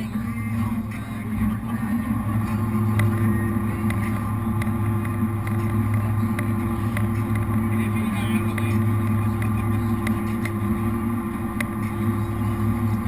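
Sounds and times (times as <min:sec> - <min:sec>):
boat engines droning: 0:00.0 - 0:13.0.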